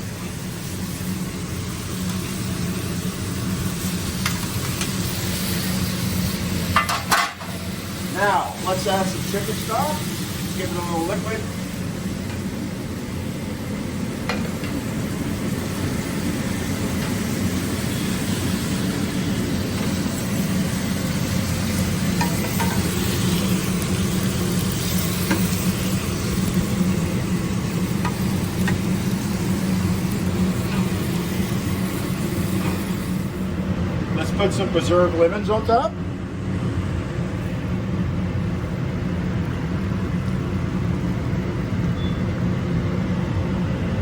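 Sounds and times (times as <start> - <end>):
stock sizzling in a pan: 0.0 - 33.6
constant low hum: 0.0 - 44.0.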